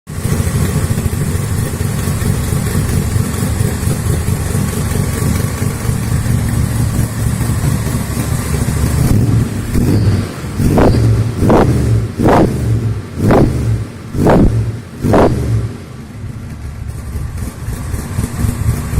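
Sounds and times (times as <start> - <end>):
engine idling and revving: 0.1 - 18.9.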